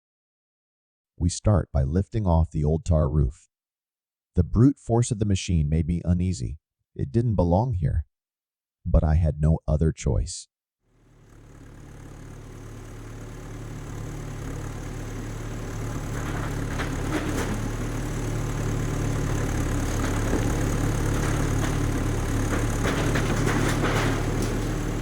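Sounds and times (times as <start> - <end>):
diesel engine running: 11.0 - 25.0
cracking and knocking: 13.3 - 25.0.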